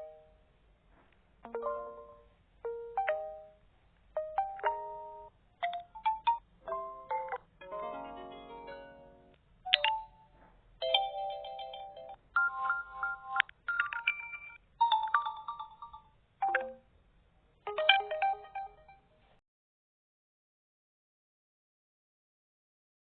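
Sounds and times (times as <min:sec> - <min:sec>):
smartphone ringtone melodies: 0:01.5 - 0:03.6, 0:04.2 - 0:16.8, 0:17.7 - 0:19.0.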